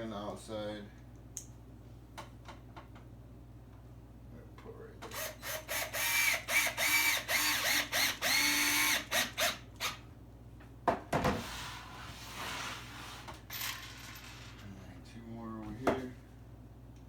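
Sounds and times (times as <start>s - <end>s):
power drill driving screw into wood: 5.1s - 10.0s.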